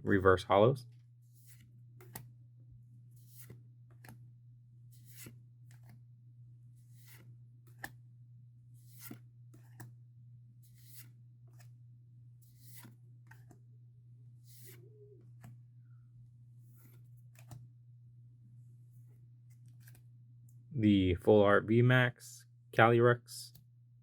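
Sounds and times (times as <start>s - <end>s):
steady low hum: 0.0s - 24.0s
cards swishing and clicking: 1.3s - 2.4s, 3.2s - 6.0s, 6.8s - 8.0s, 8.8s - 10.0s, 10.6s - 11.8s, 12.4s - 13.6s, 14.4s - 15.6s, 16.6s - 17.7s, 19.4s - 20.1s.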